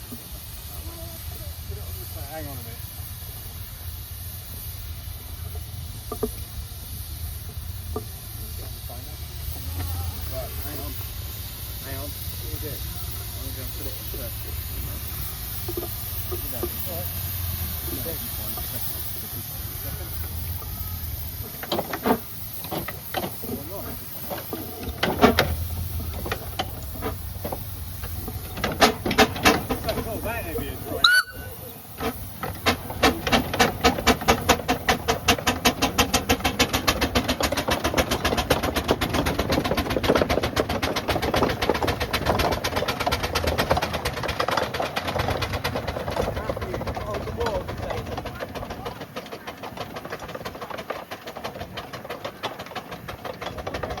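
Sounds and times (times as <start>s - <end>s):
low engine rumble: 0.0s - 54.0s
steam engine knocks and chuffs: 0.0s - 54.0s.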